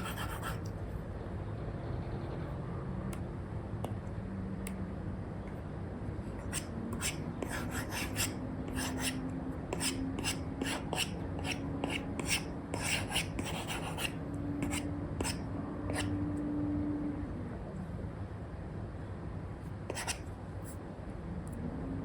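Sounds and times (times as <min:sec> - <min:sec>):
stylus scratching on screen: 0:00.0 - 0:00.7, 0:06.4 - 0:09.2, 0:09.8 - 0:16.1, 0:19.9 - 0:20.8
faint steady hum: 0:00.0 - 0:22.0.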